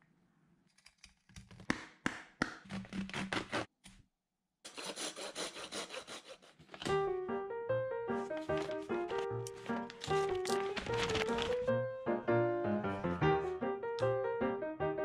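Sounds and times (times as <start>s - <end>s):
knife blades cutting and scraping: 4.7s - 6.9s
melodic music: 7.0s - 15.0s.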